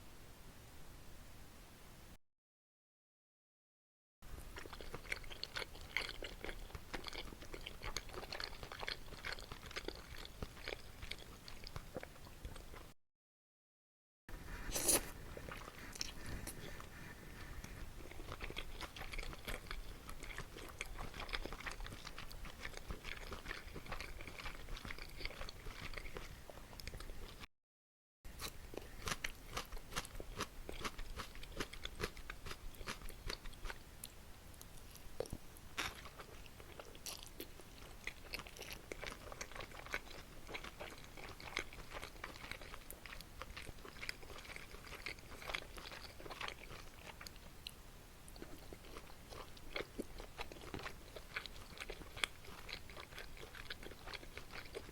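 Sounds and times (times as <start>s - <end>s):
chewing and crunching food: 4.4s - 13.0s, 14.4s - 27.5s, 28.3s - 54.9s.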